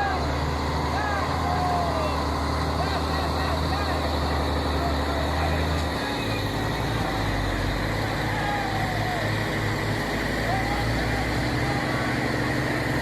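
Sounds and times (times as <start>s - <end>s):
heavy truck engine droning: 0.0s - 13.0s.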